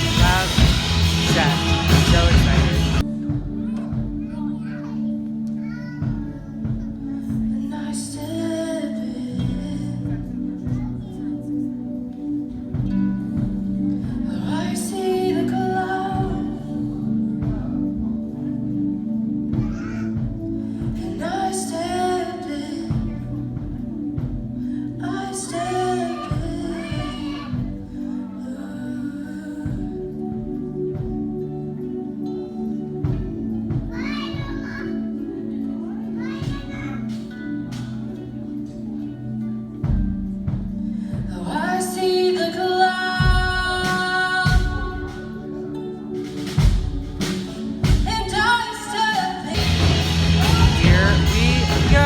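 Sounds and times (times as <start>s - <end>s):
bass drum thumps: 0.0s - 4.2s, 49.6s - 52.0s
band playing worship music: 0.0s - 4.6s, 42.9s - 52.0s
sustained instrumental chords: 0.0s - 5.6s, 6.3s - 52.0s
worship singing: 0.0s - 52.0s.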